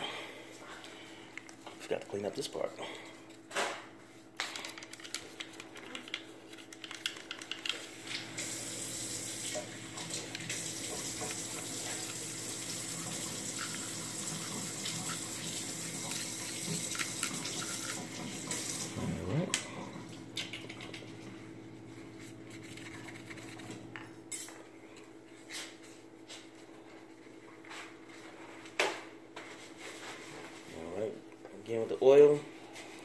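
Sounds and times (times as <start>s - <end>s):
water running from a tap: 8.0s - 19.0s.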